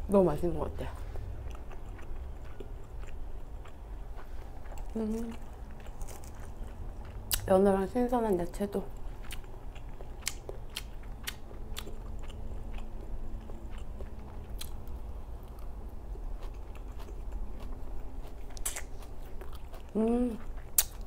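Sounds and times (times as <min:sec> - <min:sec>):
chewing and biting salad: 0:00.8 - 0:07.5, 0:08.9 - 0:21.0
wet mouth clicks and smacks: 0:20.8 - 0:21.0.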